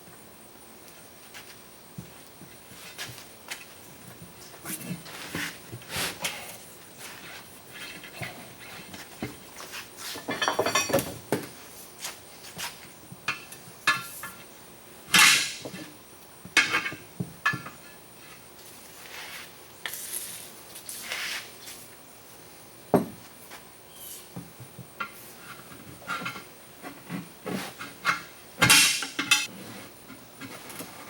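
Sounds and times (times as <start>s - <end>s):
metallic clanks and knocks: 28.6s - 29.5s.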